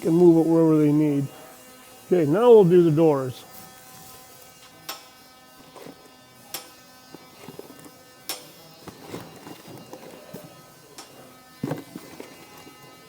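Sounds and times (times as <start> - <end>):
steady electrical hum: 0.0 - 8.4.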